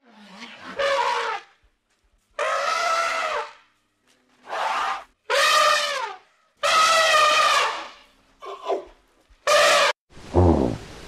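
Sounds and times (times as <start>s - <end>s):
elephants trumpeting: 0.1s - 1.5s, 2.4s - 3.5s, 4.4s - 8.8s, 9.5s - 9.9s.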